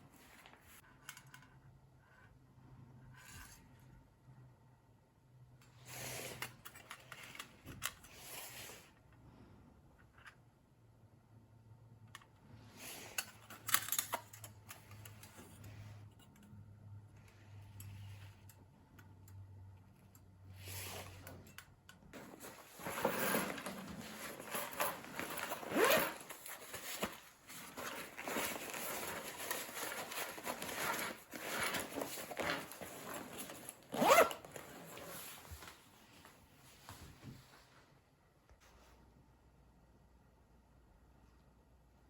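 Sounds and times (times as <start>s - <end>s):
rustling and scraping of handling: 20.0s - 38.0s.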